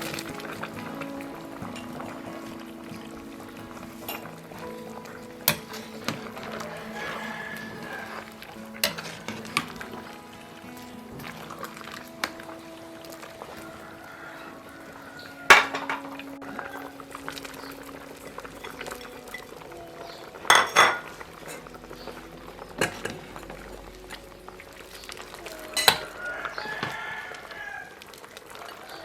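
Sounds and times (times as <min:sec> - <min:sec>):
low steady background: 0:00.0 - 0:27.7
metal cookware clinking: 0:05.0 - 0:08.2, 0:08.8 - 0:10.0, 0:15.1 - 0:16.2, 0:20.5 - 0:21.7.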